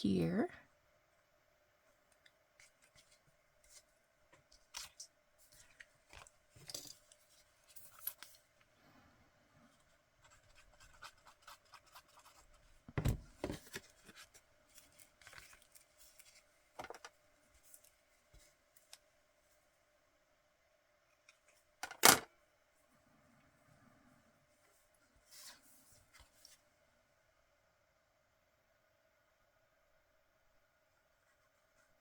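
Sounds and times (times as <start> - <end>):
paper rustling: 13.4 - 18.6.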